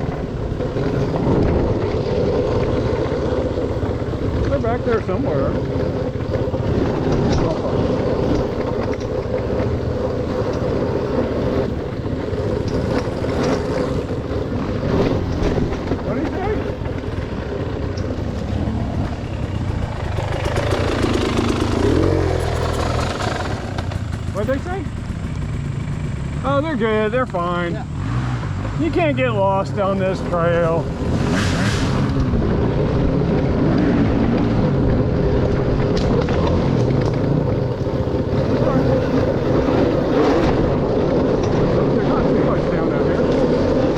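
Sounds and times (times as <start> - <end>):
dirt bike engine running: 0.0 - 43.9
wind noise on microphone: 30.8 - 43.9.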